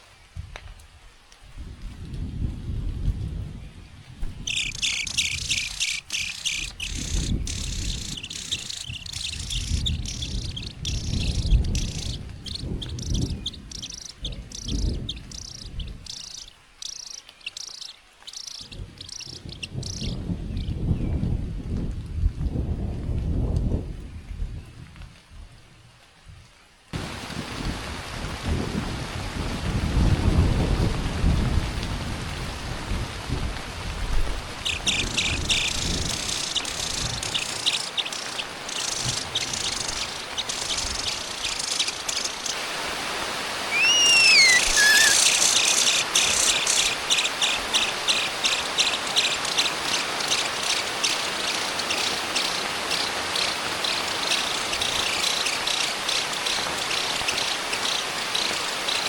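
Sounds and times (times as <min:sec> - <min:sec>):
heavy rain falling: 0:00.0 - 0:59.0
low rumble of thunder: 0:01.5 - 0:16.5, 0:18.6 - 0:41.6
nestlings begging cheeps: 0:04.4 - 0:20.7, 0:34.6 - 0:42.7, 0:43.6 - 0:59.0
bird whistled call: 0:04.5 - 0:20.2, 0:43.7 - 0:49.4.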